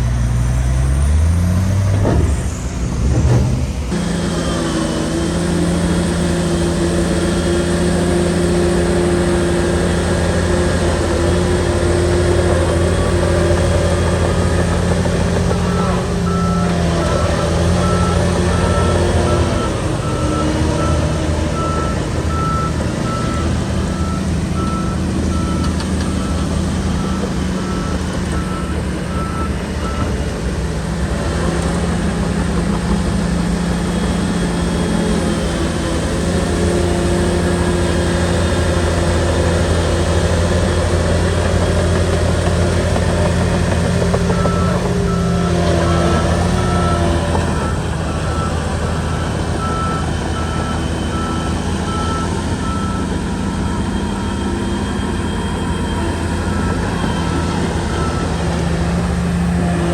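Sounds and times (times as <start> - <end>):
bulldozer diesel engine running: 0.0 - 59.9
reversing alarm beeping: 5.7 - 30.8, 41.1 - 59.9.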